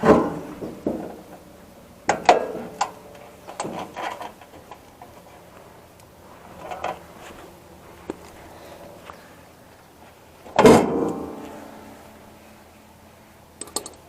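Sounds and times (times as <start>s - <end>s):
metal parts clicking and knocking: 13.6s - 14.0s.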